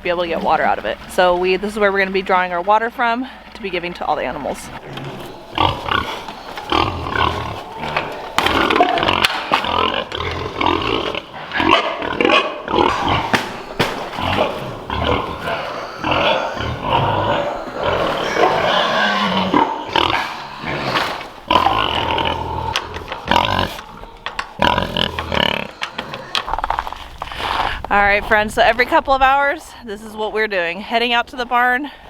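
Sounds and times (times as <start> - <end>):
pigs grunting: 3.7 - 28.0.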